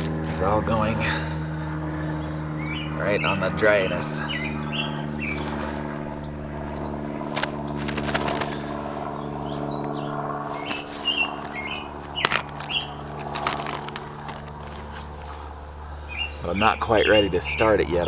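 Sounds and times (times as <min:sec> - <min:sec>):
small birds chirping: 0:00.0 - 0:18.0
steady low hum: 0:00.0 - 0:18.0
sticks and twigs cracking: 0:04.5 - 0:16.2.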